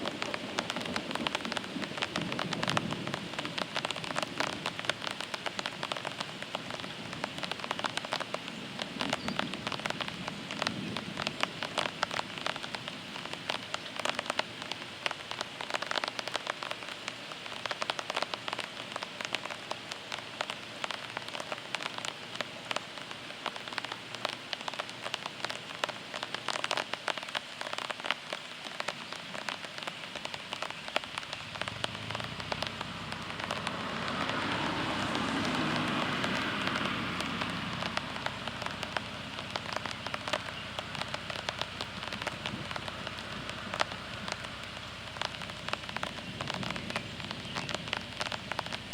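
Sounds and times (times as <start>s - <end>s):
heavy rain on surfaces: 0.0s - 48.9s.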